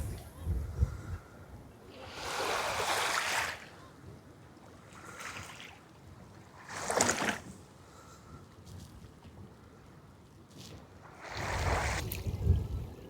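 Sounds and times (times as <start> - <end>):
waves washing onto a beach: 2.0 - 4.0, 11.0 - 13.0.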